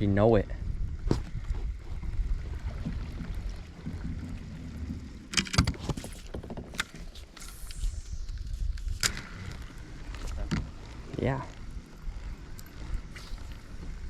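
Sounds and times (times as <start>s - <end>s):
wind rumbling on microphone: 0.0s - 14.0s
sharp clicks and knocks: 4.9s - 7.8s.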